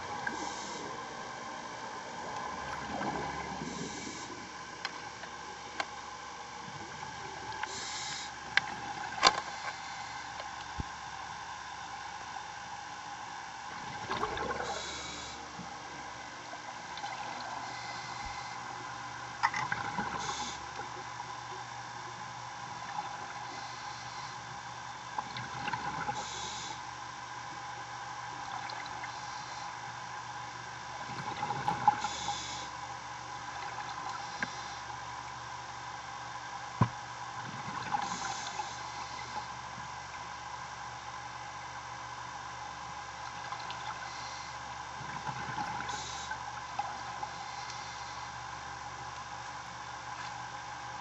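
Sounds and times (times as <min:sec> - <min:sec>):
regulator hiss: 0:00.0 - 0:01.0, 0:03.5 - 0:06.2, 0:07.2 - 0:08.8, 0:14.5 - 0:15.6, 0:20.1 - 0:20.8, 0:26.1 - 0:27.0, 0:32.0 - 0:32.9, 0:38.0 - 0:39.7, 0:45.8 - 0:46.5, 0:47.1 - 0:49.0
underwater hiss: 0:00.0 - 0:01.0, 0:02.9 - 0:04.6, 0:07.6 - 0:08.4, 0:09.4 - 0:10.4, 0:14.1 - 0:15.6, 0:17.5 - 0:18.9, 0:19.8 - 0:20.8, 0:23.3 - 0:24.6, 0:26.0 - 0:26.8, 0:29.0 - 0:29.8, 0:31.9 - 0:32.8, 0:34.1 - 0:34.9, 0:38.0 - 0:39.6, 0:43.9 - 0:44.6, 0:45.7 - 0:46.4, 0:47.1 - 0:48.5
exhaled bubbles gurgling: 0:00.0 - 0:09.7, 0:13.7 - 0:21.7, 0:25.2 - 0:26.8, 0:30.8 - 0:32.8, 0:37.4 - 0:39.4, 0:43.2 - 0:47.9
steady hum: 0:00.0 - 0:51.0.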